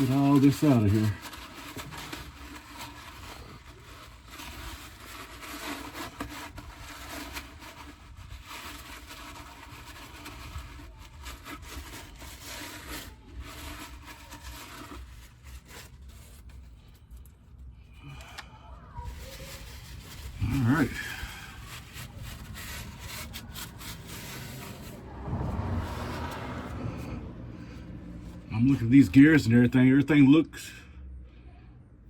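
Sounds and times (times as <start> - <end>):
scraping and rubbing metal housing: 0.0 - 16.8, 18.9 - 29.5
low rumble: 20.0 - 29.1.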